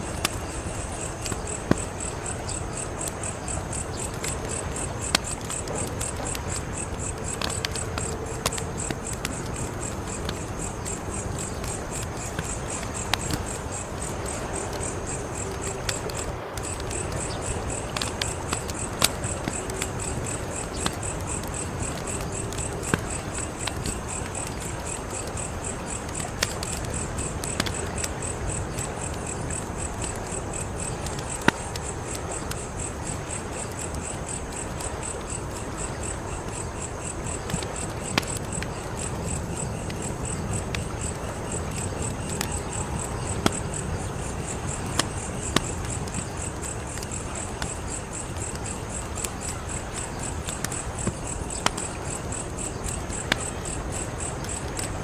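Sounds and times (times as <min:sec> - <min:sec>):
crickets chirping: 0:00.0 - 0:55.0
wood fire crackling: 0:00.0 - 0:55.0.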